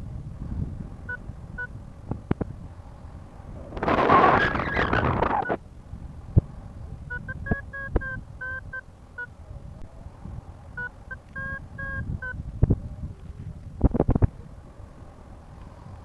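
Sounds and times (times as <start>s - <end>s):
wind rumble on microphone: 0.0s - 16.0s
variometer short beeps: 1.1s - 1.7s, 7.1s - 9.3s, 10.8s - 12.4s.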